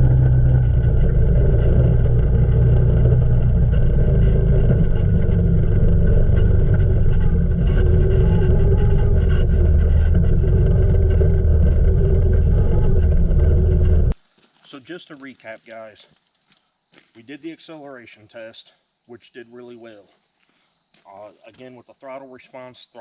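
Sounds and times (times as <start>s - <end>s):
atv engine running: 0.0s - 14.2s.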